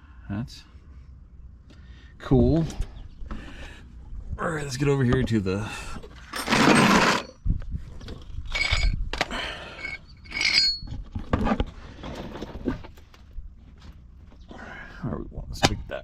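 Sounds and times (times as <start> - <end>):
metal tools clinking: 6.2 - 7.4, 8.4 - 11.0.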